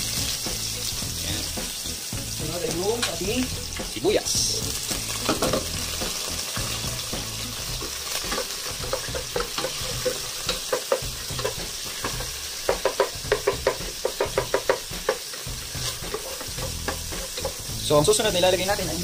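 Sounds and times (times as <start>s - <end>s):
garlic and onion sizzling in oil: 0.0s - 19.0s
spatula scraping and knocking pot: 7.8s - 17.7s.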